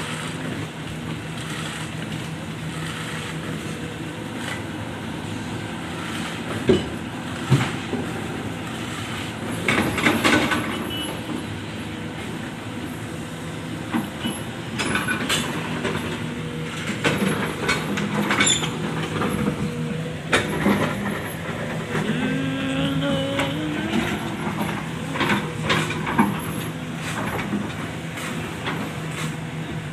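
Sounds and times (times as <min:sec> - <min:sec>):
diesel engine running: 0:00.0 - 0:29.9
metallic clanks and scraping: 0:14.8 - 0:22.2, 0:23.9 - 0:29.4.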